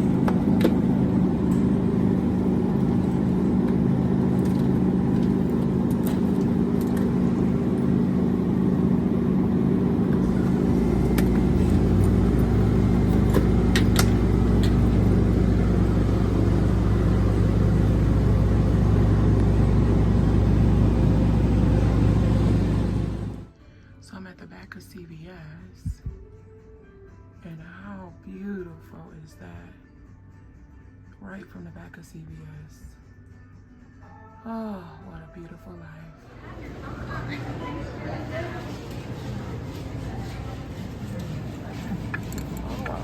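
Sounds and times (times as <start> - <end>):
car engine and road hum: 0.0 - 23.5
deep low rumble: 0.0 - 23.5.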